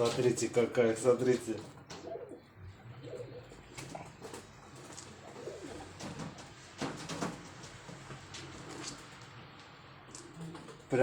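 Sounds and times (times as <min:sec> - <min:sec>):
pigeons cooing: 0:01.8 - 0:06.8.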